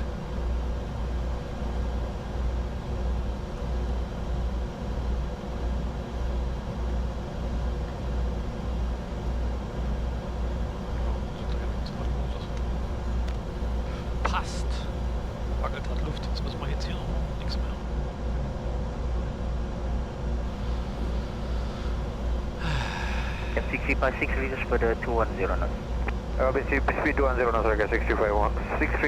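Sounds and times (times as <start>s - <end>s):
aircraft engine hum: 0.0s - 29.0s
low pulsing drone: 0.0s - 29.0s
airflow: 13.4s - 17.8s, 20.4s - 24.5s.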